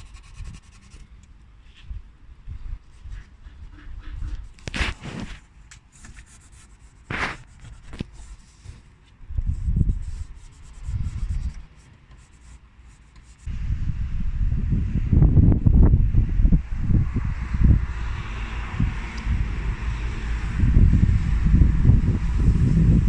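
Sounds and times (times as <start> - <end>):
cloth rubbing and rustling: 3.0 - 11.5
low rumbles: 13.5 - 23.0.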